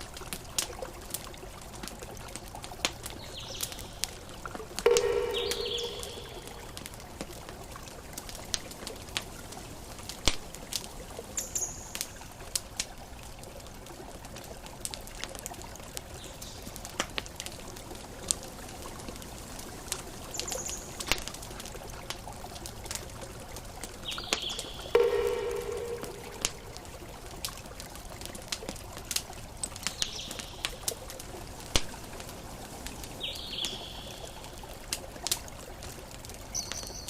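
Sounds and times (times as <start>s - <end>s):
campfire crackling: 0.0s - 37.0s
brief high chirps: 4.9s - 6.6s
loud pitched call: 4.9s - 6.7s, 24.8s - 26.8s.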